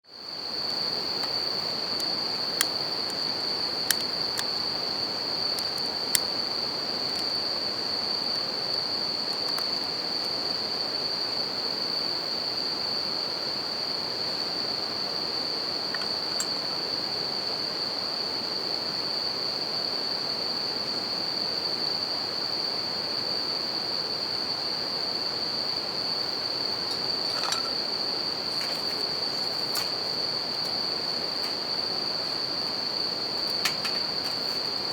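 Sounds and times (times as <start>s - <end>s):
crickets singing: 0.1s - 34.9s
campfire pops: 26.9s - 34.9s.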